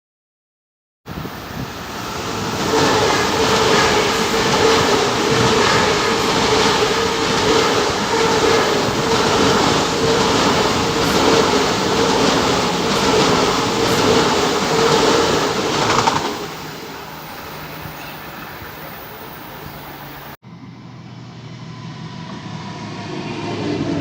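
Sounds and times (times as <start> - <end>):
train rolling on rails: 1.1 - 24.0.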